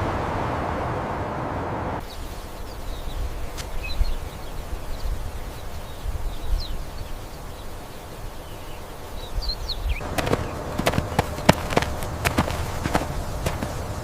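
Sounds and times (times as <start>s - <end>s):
low outdoor rumble: 10.0s - 14.0s.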